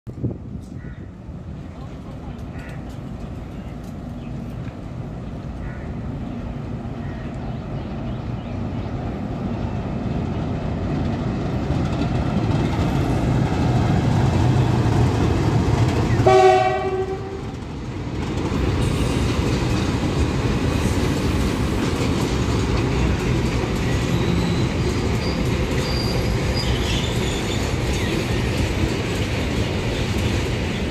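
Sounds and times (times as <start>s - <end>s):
diesel locomotive engine rumble: 0.1s - 30.9s
wagons rumbling on rails: 0.1s - 30.9s
train horn blast: 16.2s - 17.6s.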